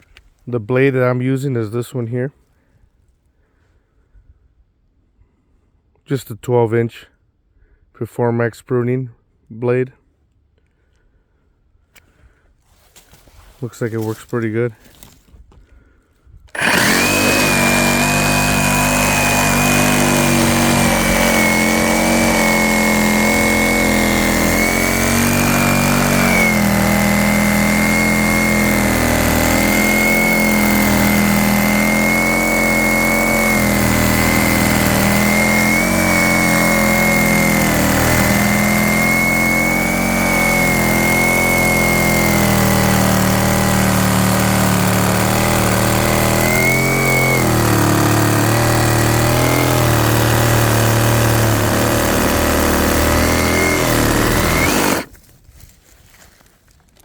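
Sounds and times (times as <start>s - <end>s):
reciprocating saw cutting wood: 16.5s - 55.2s.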